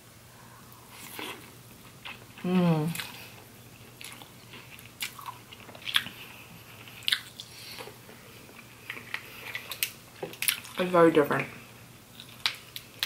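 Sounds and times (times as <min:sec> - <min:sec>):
close chewing: 0:04.0 - 0:10.8.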